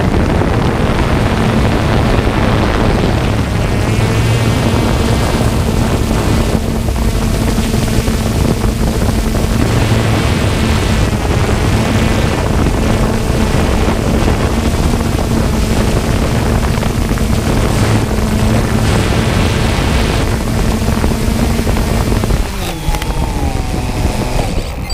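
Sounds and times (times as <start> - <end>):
drone rotors humming: 0.0 - 24.9
wavering gliding tone: 1.2 - 24.9.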